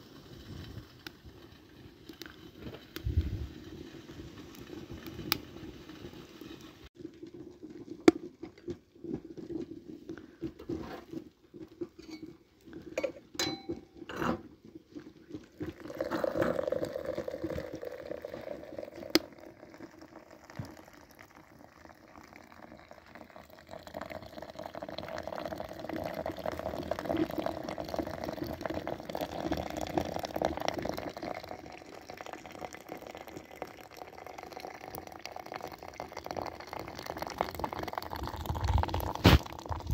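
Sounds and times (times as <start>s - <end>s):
dishes clinking: 12.0s - 12.3s, 13.0s - 14.4s
water pouring into a vessel: 15.6s - 39.9s.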